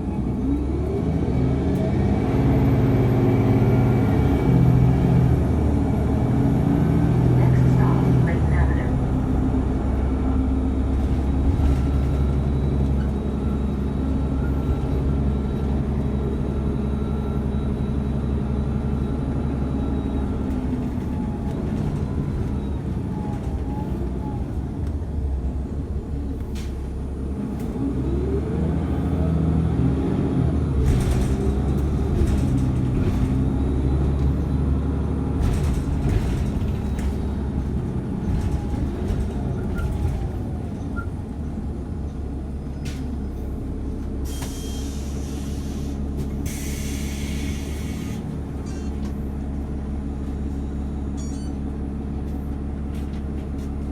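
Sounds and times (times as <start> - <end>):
bus engine running: 0.0 - 53.9
air brakes hissing: 44.2 - 48.9.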